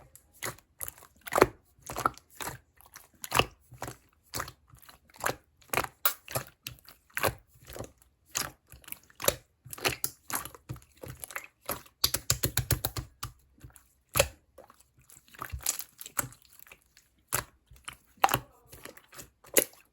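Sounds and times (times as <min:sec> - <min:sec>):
slime popping and clicking: 0:12.0 - 0:13.4.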